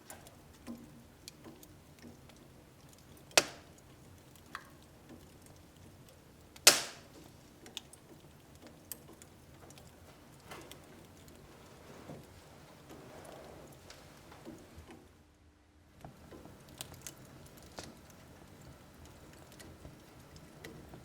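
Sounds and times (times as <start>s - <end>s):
wood fire crackling: 0.0s - 21.0s
loud pops from fire: 3.0s - 5.4s, 6.5s - 7.9s.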